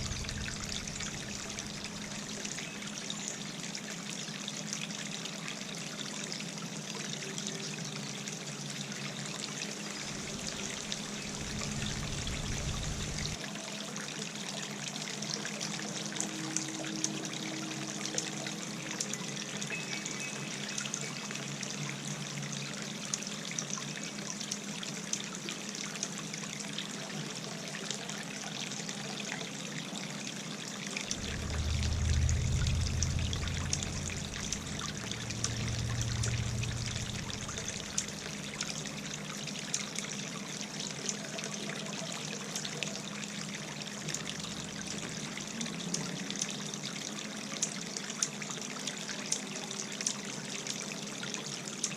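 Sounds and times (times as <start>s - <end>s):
wind rumbling on microphone: 0.0s - 2.2s, 10.2s - 13.4s, 31.1s - 38.2s
low hum: 0.0s - 2.6s, 10.0s - 13.4s, 31.1s - 39.2s
fountain water trickling: 0.0s - 51.9s.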